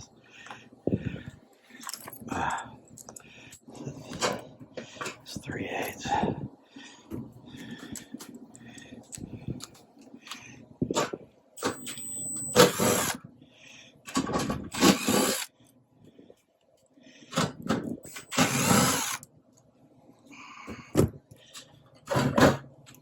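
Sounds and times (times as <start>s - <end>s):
power drill running: 11.6s - 13.2s, 14.7s - 15.5s, 18.1s - 19.2s.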